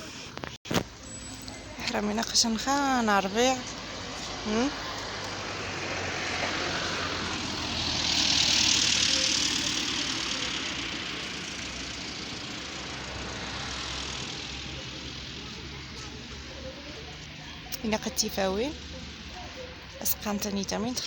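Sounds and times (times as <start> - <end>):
vehicle rushing past: 3.2 - 17.7.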